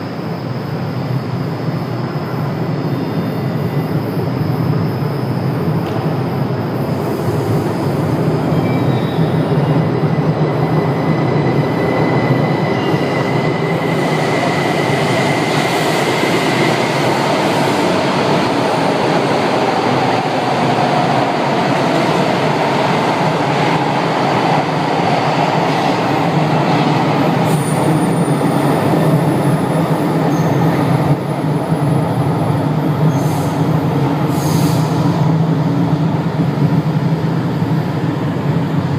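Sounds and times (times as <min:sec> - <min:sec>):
train wheels rumbling on rail: 0:00.0 - 0:38.9
high wheel squeal: 0:08.5 - 0:09.9.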